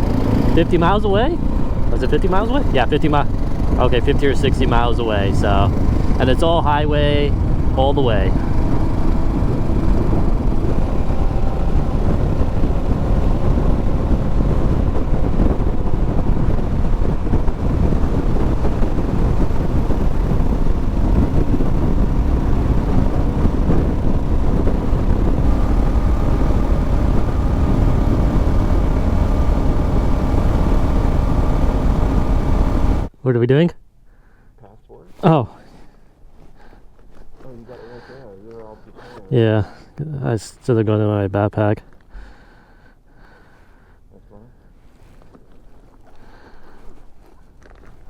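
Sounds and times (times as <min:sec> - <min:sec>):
motorcycle engine running: 0:00.0 - 0:33.1
wind and road rush: 0:00.0 - 0:33.1, 0:41.9 - 0:48.0.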